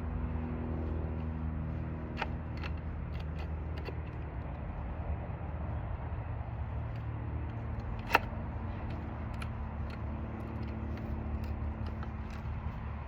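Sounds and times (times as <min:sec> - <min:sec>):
steady low hum: 0:00.0 - 0:13.0
chain clicks: 0:00.8 - 0:04.6, 0:06.9 - 0:13.0.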